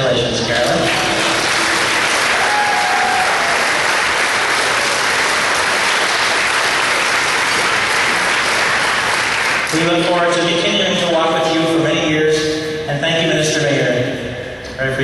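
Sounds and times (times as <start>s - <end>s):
audience applauding: 0.5s - 10.2s
faint cheers: 0.8s - 5.0s.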